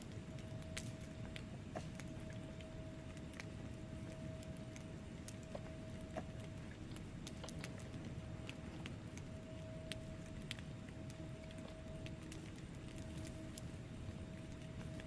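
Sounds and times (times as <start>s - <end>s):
faint steady hum: 0.0s - 15.0s
low rumble of burning logs: 0.0s - 15.0s
wood fire crackling: 0.0s - 15.0s.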